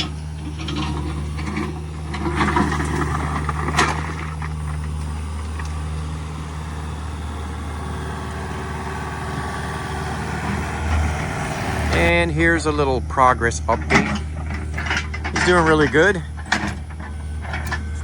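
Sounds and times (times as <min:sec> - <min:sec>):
diesel engine running: 0:00.0 - 0:18.0
clattering: 0:13.7 - 0:17.9.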